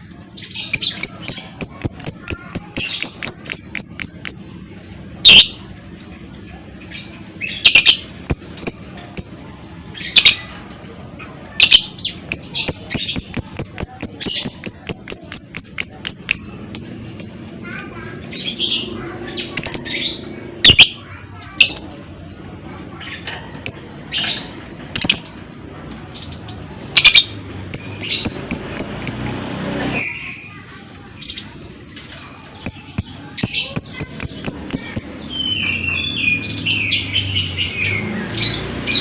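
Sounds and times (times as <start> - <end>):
lovebird chirping: 0.4 - 4.5, 11.6 - 17.4, 26.2 - 30.2.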